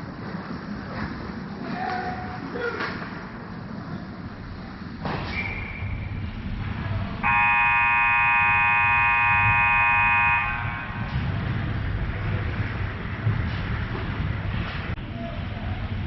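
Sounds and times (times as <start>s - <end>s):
arena rumble: 5.9s - 16.0s
scoreboard horn blast: 7.2s - 11.1s.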